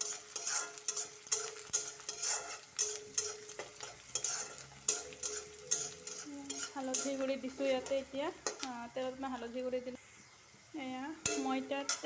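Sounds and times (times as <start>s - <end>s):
spatula scraping a pan: 0.0s - 8.7s, 11.2s - 12.0s
oil sizzling: 0.0s - 12.0s.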